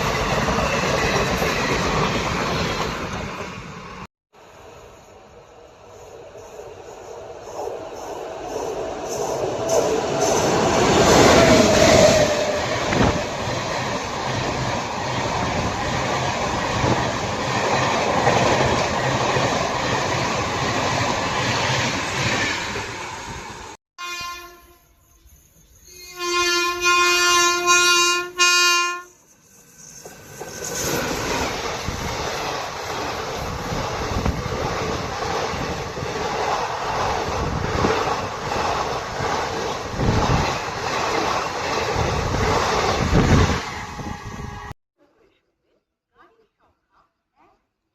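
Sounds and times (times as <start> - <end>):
train wheels rattling on track: 0.0 - 4.1, 5.0 - 23.8, 29.1 - 44.7
train passing at speed: 0.0 - 23.8, 28.2 - 44.8
locomotive horn blasts: 24.0 - 25.0, 25.9 - 29.2, 43.7 - 44.7.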